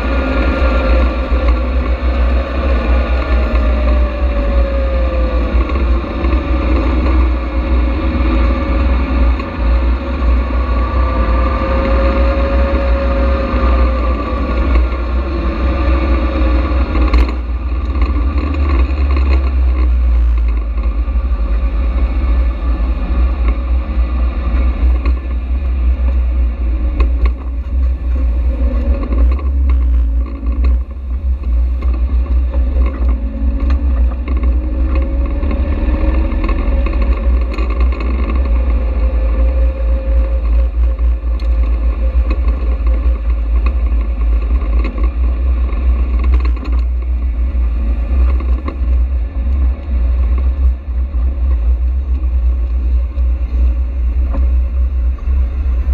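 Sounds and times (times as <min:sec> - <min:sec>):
car engine running: 0:00.0 - 0:55.9
wind rumble on microphone: 0:00.0 - 0:55.9.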